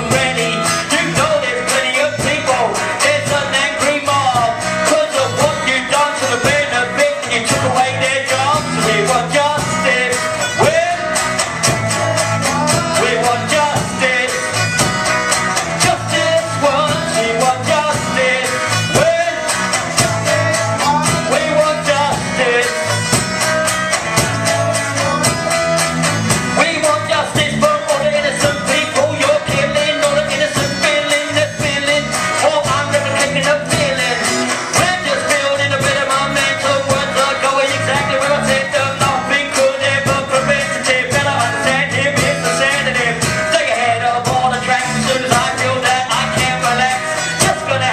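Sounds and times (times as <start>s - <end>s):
live band music: 0.0s - 47.9s.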